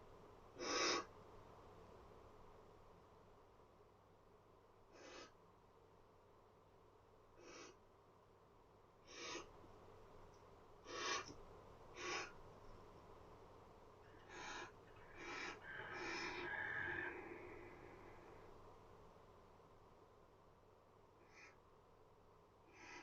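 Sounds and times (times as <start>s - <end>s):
barn owl hissing calls: 0.6s - 1.1s, 4.9s - 5.4s, 7.4s - 7.8s, 9.0s - 9.5s, 10.8s - 12.4s, 14.2s - 18.5s, 21.2s - 21.6s, 22.7s - 23.0s.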